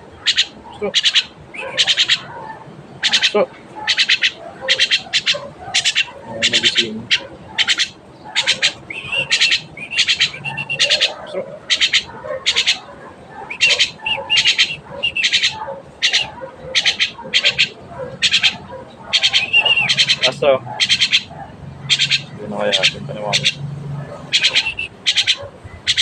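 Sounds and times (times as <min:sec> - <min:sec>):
bird squawking: 0:00.0 - 0:26.0
bird whistled notes: 0:07.1 - 0:11.1, 0:13.5 - 0:16.3, 0:19.1 - 0:21.2, 0:24.3 - 0:26.0.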